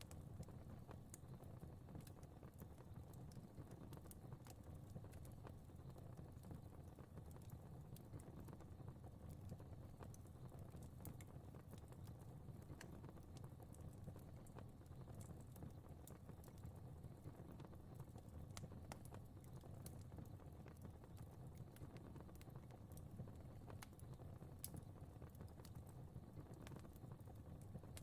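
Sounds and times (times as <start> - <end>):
fire crackling and popping: 0.0 - 28.0.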